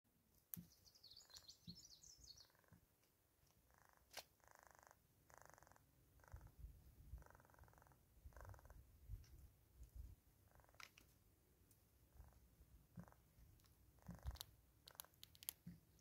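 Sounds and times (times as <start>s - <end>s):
birds twittering: 0.6s - 2.7s
buzzy bird trills: 0.7s - 2.7s
sharp clicks: 13.5s - 16.0s.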